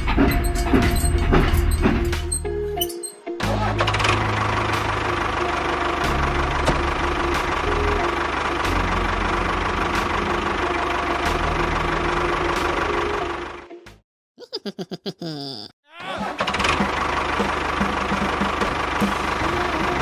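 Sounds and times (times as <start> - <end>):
tractor engine idling: 3.7 - 13.7, 16.3 - 20.0.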